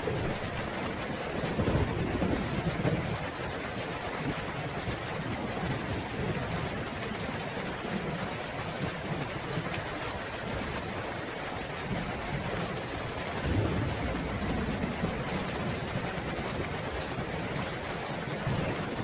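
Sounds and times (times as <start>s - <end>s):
rolling thunder: 0.0s - 3.3s, 13.3s - 17.6s, 18.3s - 19.0s
steady rain: 0.0s - 19.0s.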